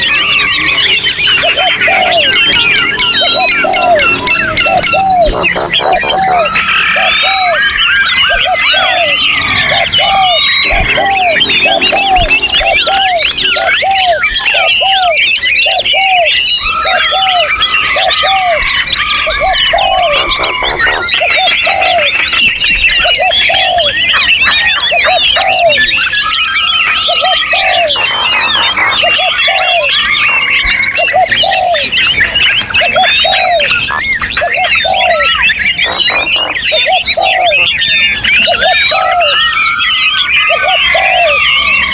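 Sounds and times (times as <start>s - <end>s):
low cooing note: 0.0s - 24.2s, 26.7s - 31.9s
songbirds singing: 0.0s - 41.9s.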